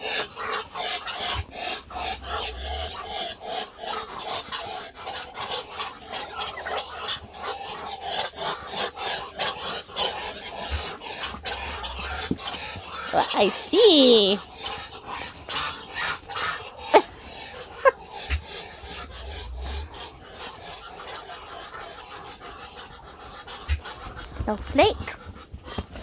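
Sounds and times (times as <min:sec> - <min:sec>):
roosters chattering raspy calls: 0:00.0 - 0:26.0.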